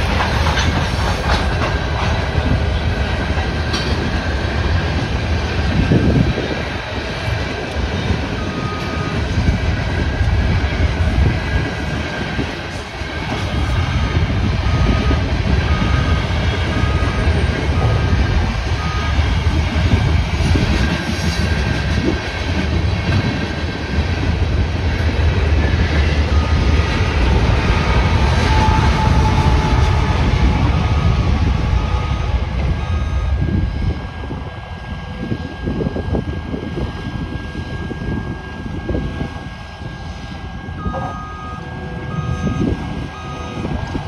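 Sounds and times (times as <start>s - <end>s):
freight train rumbling: 0.0s - 44.0s
crossing bell dinging: 26.2s - 35.2s, 40.6s - 43.9s.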